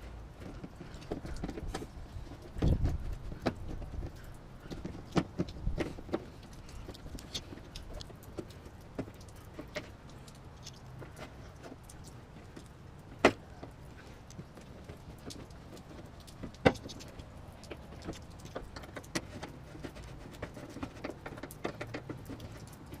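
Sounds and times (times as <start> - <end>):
light clicks and clinks: 4.0 - 12.8.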